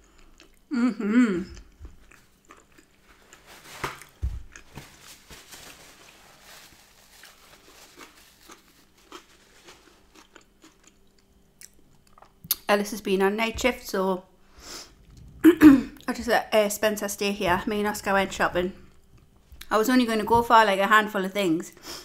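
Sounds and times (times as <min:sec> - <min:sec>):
chewing: 0:00.0 - 0:00.7, 0:01.5 - 0:04.7, 0:08.0 - 0:12.6
paper towel rustling: 0:03.0 - 0:10.1.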